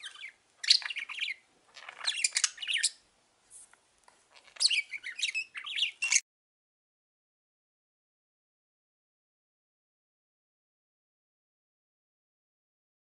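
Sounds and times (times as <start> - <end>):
budgerigars chirping: 0.0 - 3.0, 4.4 - 6.2.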